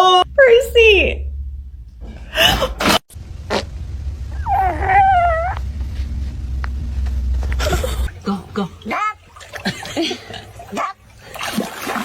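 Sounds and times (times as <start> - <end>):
steady low rumble: 0.0 - 9.4
cat meowing: 4.4 - 5.6.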